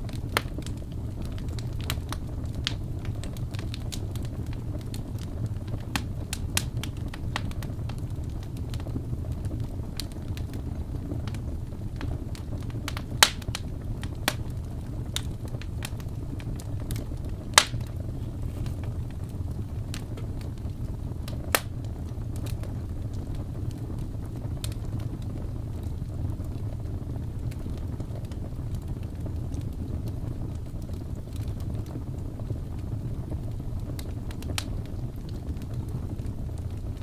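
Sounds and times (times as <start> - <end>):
fire crackles and pops: 0.0 - 37.0
fireplace fire rumbling: 0.0 - 37.0.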